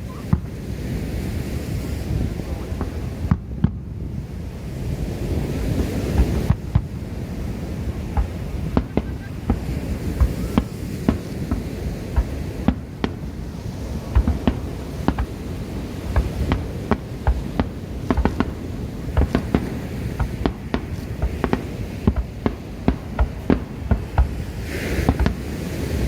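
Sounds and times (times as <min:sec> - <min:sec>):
fireworks bangs: 0:00.0 - 0:26.0
low rumble of fireworks barrage: 0:00.0 - 0:26.0.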